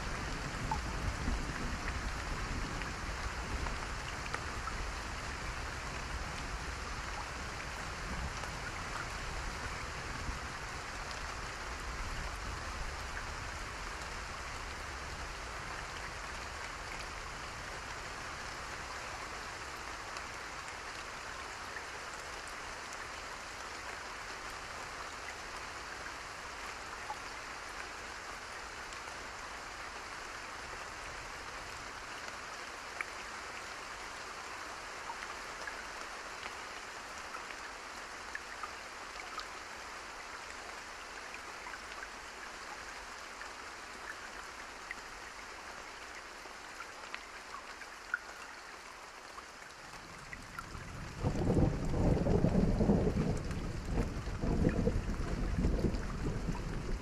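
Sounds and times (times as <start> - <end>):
steady rain hiss: 0.0 - 57.0
raindrops ticking: 51.1 - 57.0.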